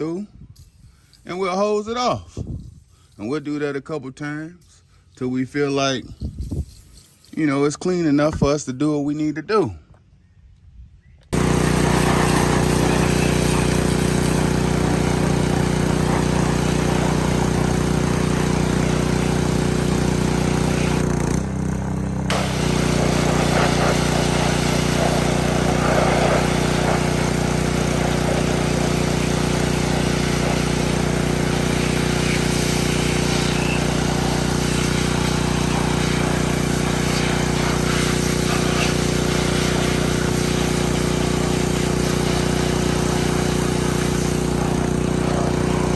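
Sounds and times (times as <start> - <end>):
water jet hissing: 11.4 - 21.1, 22.3 - 45.9
pressure washer motor running: 11.4 - 45.9.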